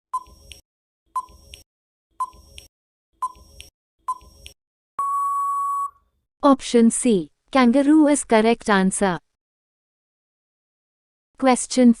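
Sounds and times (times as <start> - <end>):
long steady beep: 5.0 - 6.0
short countdown beeps: 5.0 - 6.0.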